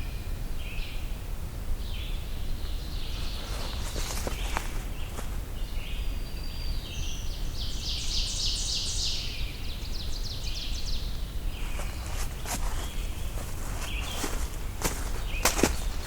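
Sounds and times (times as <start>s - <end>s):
songbird singing: 0.0s - 16.0s
low outdoor rumble: 9.2s - 16.0s.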